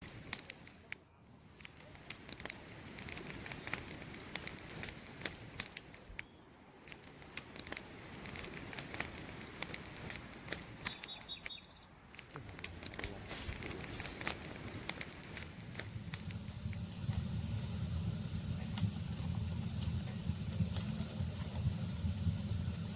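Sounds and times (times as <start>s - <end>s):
campfire crackling and popping: 0.0s - 22.9s
high chirps: 9.8s - 12.0s.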